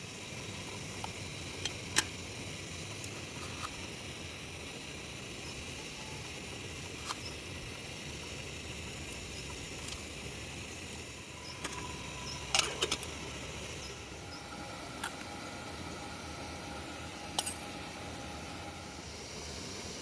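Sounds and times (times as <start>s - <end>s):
background hiss: 0.0s - 20.0s
small objects clicking and clinking: 11.4s - 13.2s.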